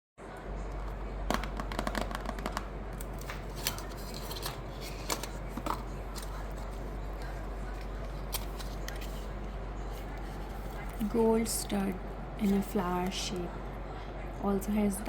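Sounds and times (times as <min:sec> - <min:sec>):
packaging crinkling: 0:01.3 - 0:09.4.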